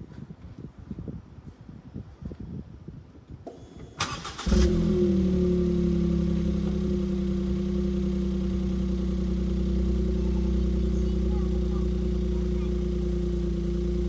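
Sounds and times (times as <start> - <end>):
car engine starting and idling: 3.5 - 14.0.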